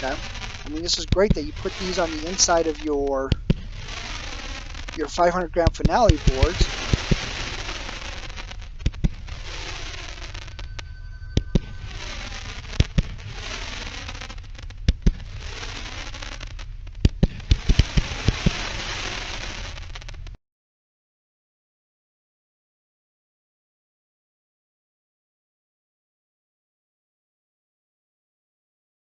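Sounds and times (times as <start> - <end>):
firework bangs: 0.0 - 20.4
firework crackling: 0.0 - 20.4.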